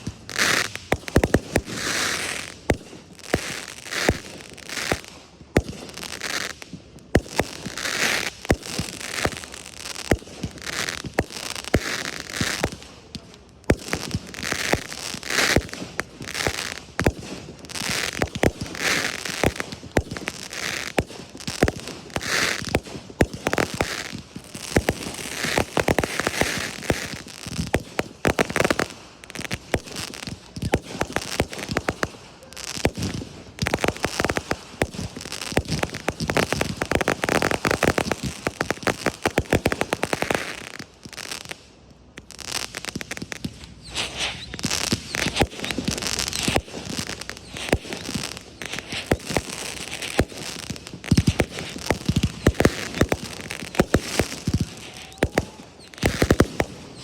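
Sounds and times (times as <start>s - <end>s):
fireworks bangs: 0.0s - 57.0s
fireworks crackling: 0.0s - 57.0s.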